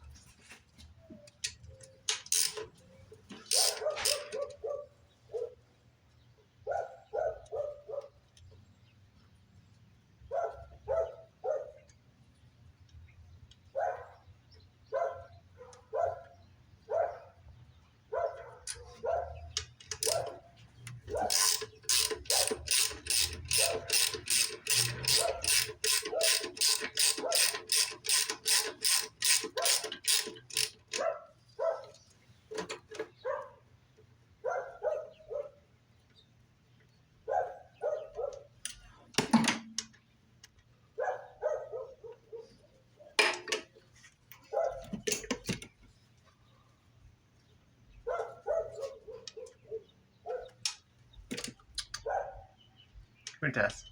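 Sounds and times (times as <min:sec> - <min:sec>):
tool clicks: 0:01.5 - 0:04.5, 0:19.6 - 0:31.0
ratchet wrench clicking: 0:02.1 - 0:02.7, 0:03.4 - 0:04.4, 0:19.6 - 0:20.3, 0:21.1 - 0:31.0.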